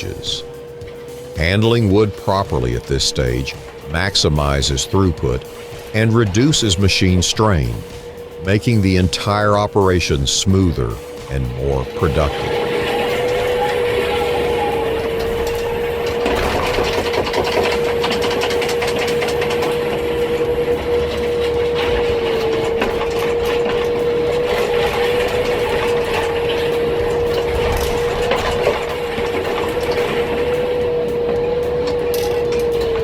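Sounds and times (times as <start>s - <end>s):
wood shredder whining: 7.8s - 8.4s, 12.2s - 33.0s.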